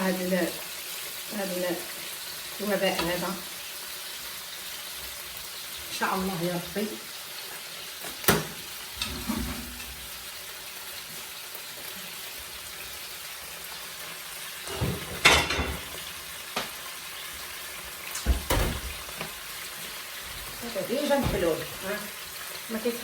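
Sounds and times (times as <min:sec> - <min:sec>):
chicken sizzling in a pan: 0:00.0 - 0:23.0.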